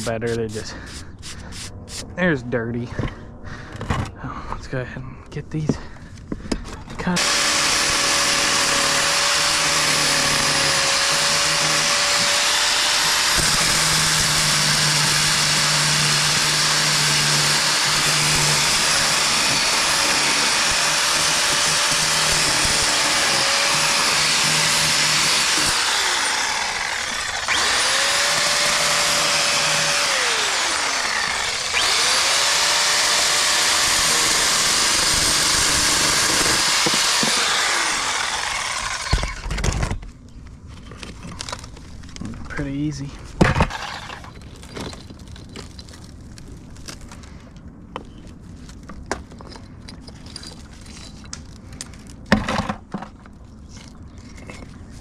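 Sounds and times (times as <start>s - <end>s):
angle grinder cutting brick: 7.1s - 39.6s, 43.6s - 44.4s
grinder spinning down whine: 7.2s - 39.4s.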